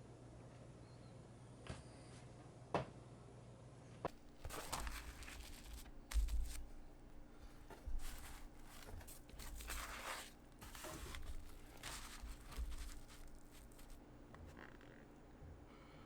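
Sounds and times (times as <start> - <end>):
soft thumps: 4.1 - 14.0
rustling and crinkling: 4.1 - 15.2.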